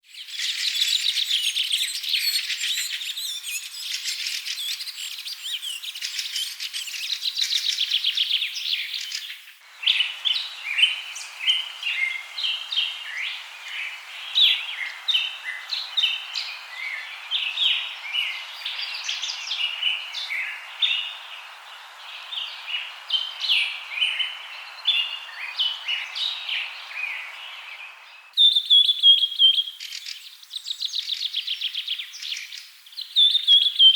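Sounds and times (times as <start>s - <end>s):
soft hiss: 0.1s - 28.4s
birds chirping and calling: 0.2s - 30.2s.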